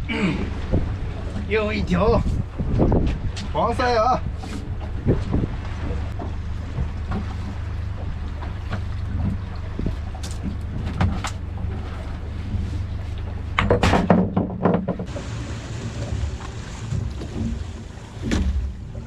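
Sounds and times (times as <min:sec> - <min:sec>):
boat engine running: 0:00.0 - 0:19.0
knocking and clattering: 0:13.6 - 0:15.2.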